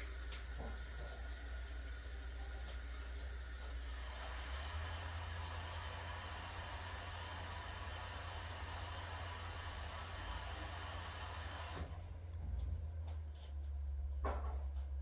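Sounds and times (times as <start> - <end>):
steady hiss: 0.0 - 11.9.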